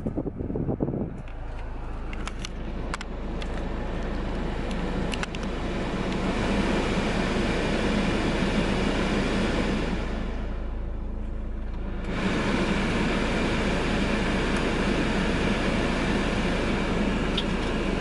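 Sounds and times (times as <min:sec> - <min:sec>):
car engine and road noise: 0:00.0 - 0:18.0
sharp clicks: 0:04.7 - 0:05.5.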